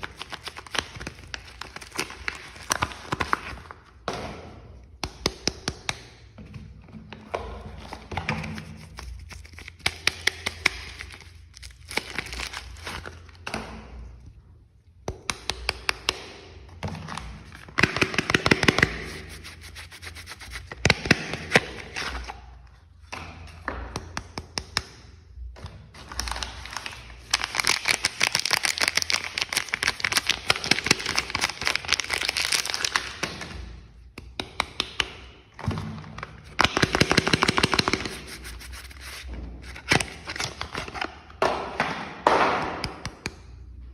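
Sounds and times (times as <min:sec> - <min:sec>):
wrapper crinkling and crackling: 0:00.0 - 0:03.7, 0:26.1 - 0:33.2
rubbing and scraping: 0:18.8 - 0:20.9, 0:37.2 - 0:40.1.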